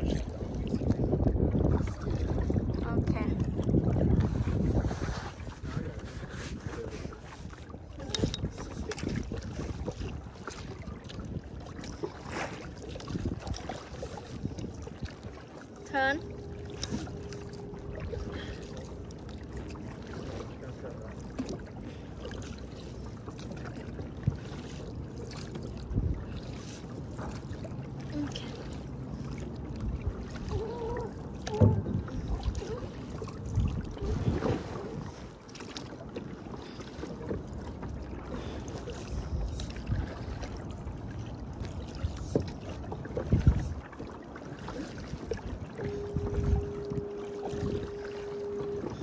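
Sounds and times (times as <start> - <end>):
wind on microphone: 0.0 - 18.9, 25.4 - 27.4, 29.3 - 35.4, 38.3 - 44.1, 44.7 - 49.0
paddle splashing: 0.0 - 49.0
water lapping against hull: 0.0 - 49.0.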